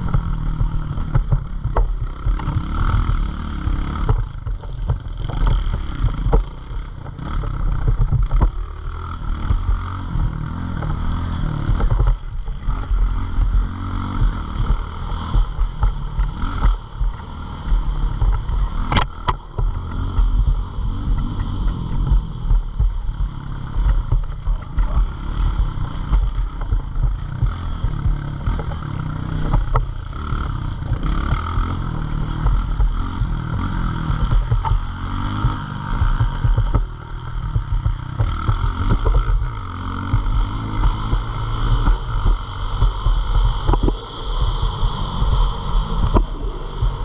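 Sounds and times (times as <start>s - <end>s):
small motorbike engines revving: 0.0s - 47.0s
wind buffeting microphone: 17.8s - 47.0s.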